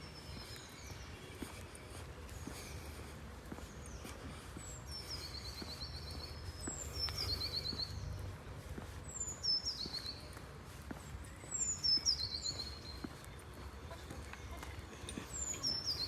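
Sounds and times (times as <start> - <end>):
soft footsteps: 0.0 - 16.0
songbird singing with trill: 9.1 - 10.4, 11.3 - 13.6, 15.2 - 16.0.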